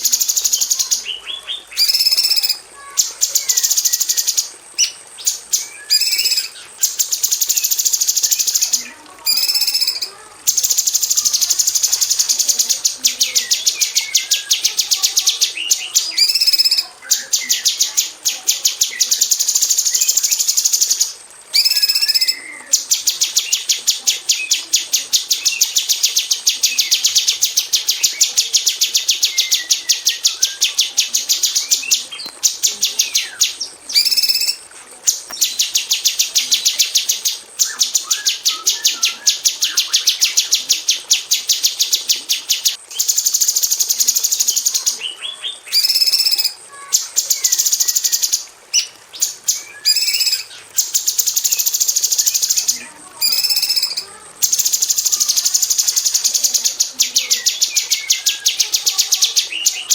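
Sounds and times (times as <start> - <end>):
bird calling in rapid bursts: 0.0 - 59.9.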